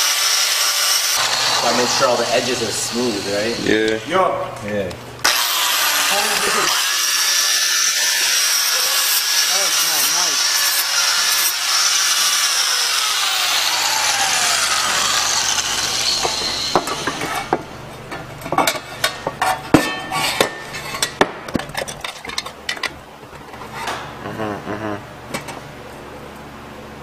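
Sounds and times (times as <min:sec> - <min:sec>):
power tool grinding metal: 0:00.0 - 0:04.2, 0:05.2 - 0:17.8.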